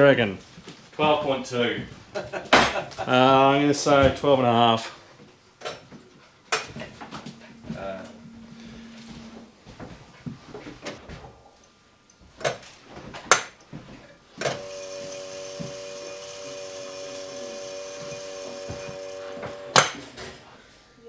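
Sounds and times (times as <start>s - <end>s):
small machine humming: 6.5s - 11.1s, 14.4s - 20.2s.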